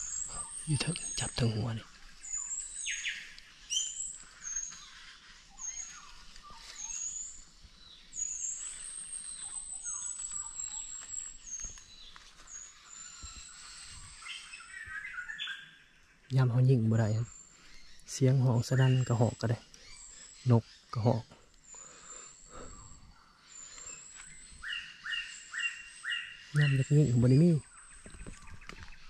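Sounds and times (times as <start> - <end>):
thin high bird chirps: 0.0 - 21.9
lower slurred bird notes: 0.0 - 29.0.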